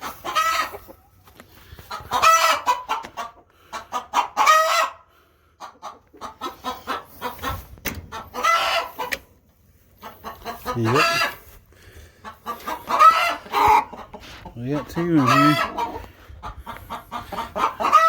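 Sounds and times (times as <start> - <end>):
hen clucking: 0.0 - 18.0
hen squawking: 10.0 - 11.5, 12.2 - 16.0.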